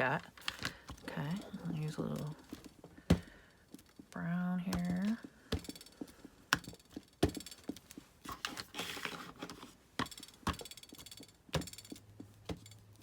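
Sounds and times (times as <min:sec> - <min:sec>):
rubber stamp knocking on paper: 0:03.0 - 0:03.4
paper rustle: 0:08.2 - 0:09.8.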